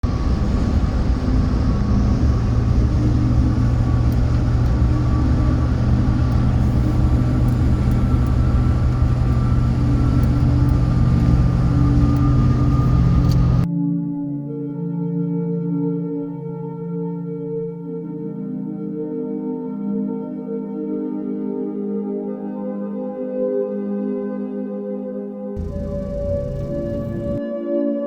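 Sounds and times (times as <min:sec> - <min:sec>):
car driving on highway: 0:00.1 - 0:13.7, 0:25.6 - 0:27.4.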